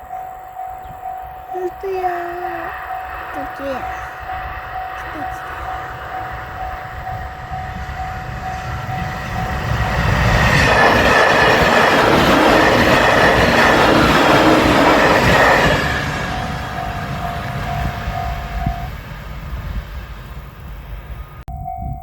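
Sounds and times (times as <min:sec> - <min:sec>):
level crossing alarm dinging: 0:00.0 - 0:10.0, 0:15.3 - 0:19.0
electric train passing: 0:00.0 - 0:22.0.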